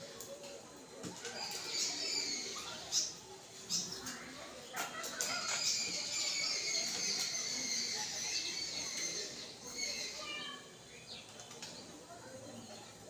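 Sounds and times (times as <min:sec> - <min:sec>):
birds chirping and twittering: 0:00.0 - 0:13.0.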